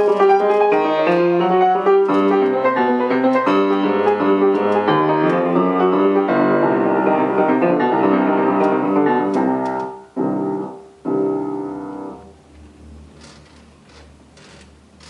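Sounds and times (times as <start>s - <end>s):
solo piano classical piece: 0.0s - 13.1s.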